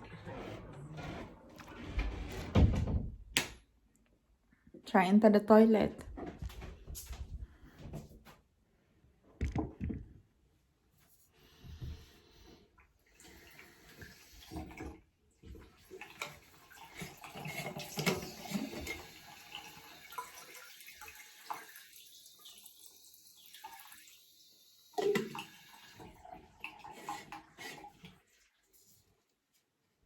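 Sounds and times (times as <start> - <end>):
water running from a tap: 13.1 - 15.0, 15.7 - 28.2.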